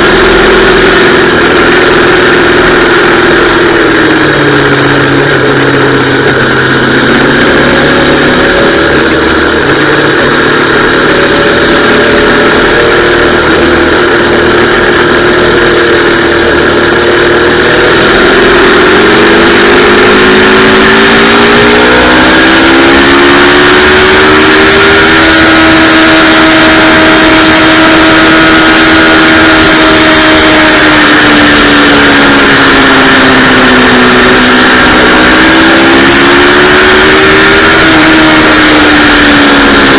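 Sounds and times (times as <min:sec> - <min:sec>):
motorcycle engine running hard: 0:00.0 - 0:39.9.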